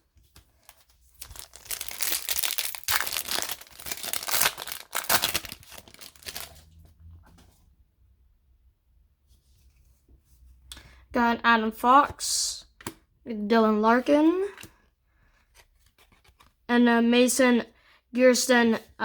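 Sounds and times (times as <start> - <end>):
foil wrapper crinkling and tearing: 0.6 - 6.6.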